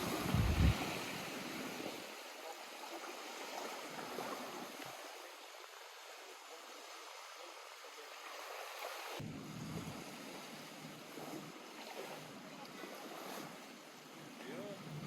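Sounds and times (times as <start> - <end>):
lake water lapping at shore: 0.0 - 15.0
deep rumble: 0.3 - 0.8.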